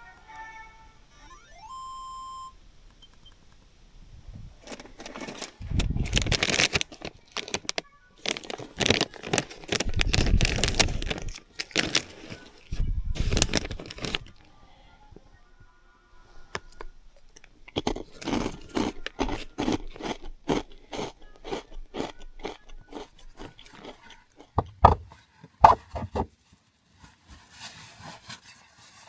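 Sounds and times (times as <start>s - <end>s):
rustling and clattering: 4.6s - 12.6s, 24.5s - 29.0s.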